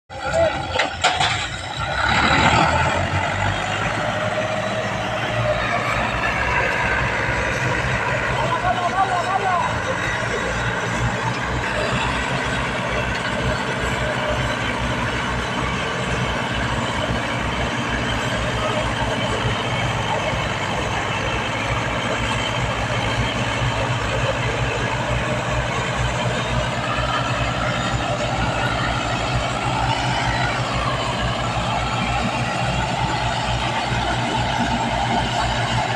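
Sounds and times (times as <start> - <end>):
tractor diesel engine running: 0.1 - 35.9.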